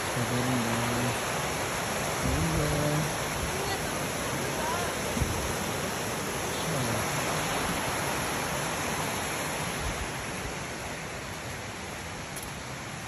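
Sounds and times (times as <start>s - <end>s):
waterfall and flowing creek: 0.0s - 13.0s.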